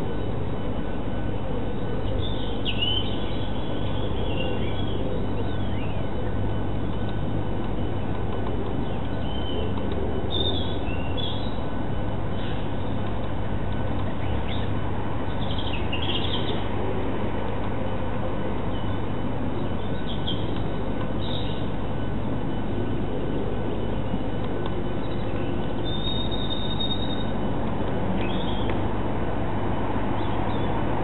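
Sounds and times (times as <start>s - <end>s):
steady hum and hiss: 0.0s - 31.0s
bird chirps and calls: 10.3s - 11.6s, 25.0s - 27.3s.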